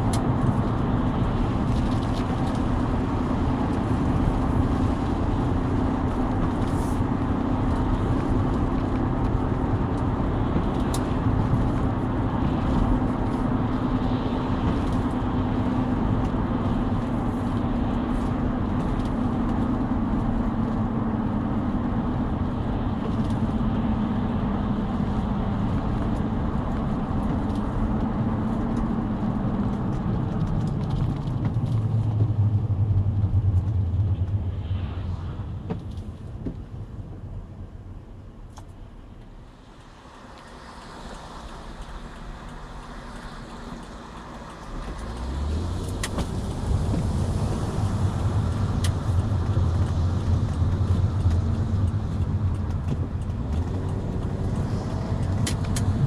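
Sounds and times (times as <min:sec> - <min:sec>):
car engine drone: 0:00.0 - 0:56.0
tyre road noise: 0:00.0 - 0:56.0
low hum: 0:31.1 - 0:39.5.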